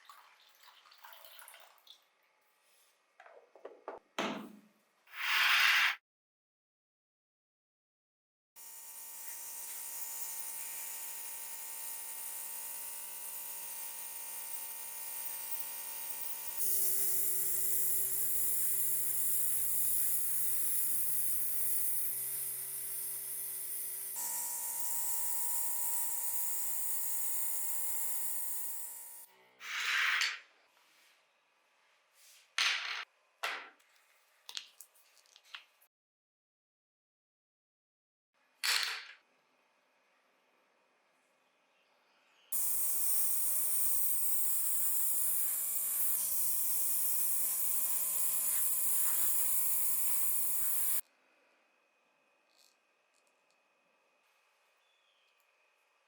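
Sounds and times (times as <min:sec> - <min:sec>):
electric tool whining: 0:08.6 - 0:29.3, 0:42.5 - 0:51.0.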